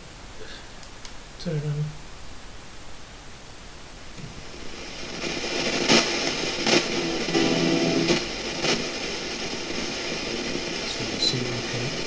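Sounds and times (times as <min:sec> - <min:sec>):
radio static hiss: 0:04.1 - 0:12.0
short static bursts: 0:04.2 - 0:12.0
snatch of radio broadcast: 0:04.2 - 0:12.0.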